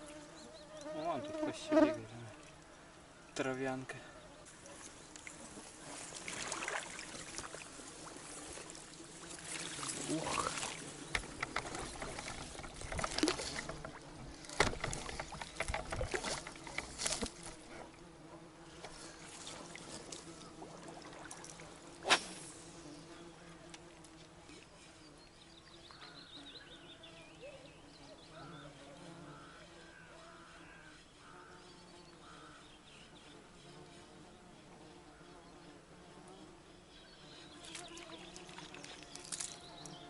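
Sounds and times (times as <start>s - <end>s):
insects buzzing: 0.0s - 40.0s
sharp splashes and knocks: 5.8s - 7.7s, 9.4s - 17.6s.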